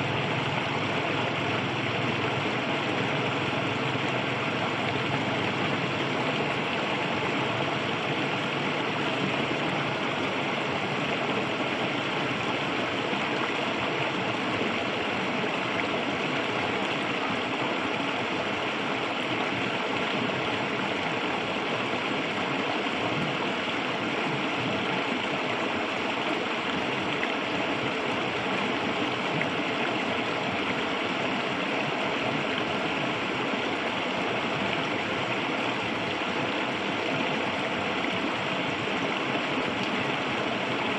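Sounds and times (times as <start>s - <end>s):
shallow river flowing over stones: 0.0s - 40.9s.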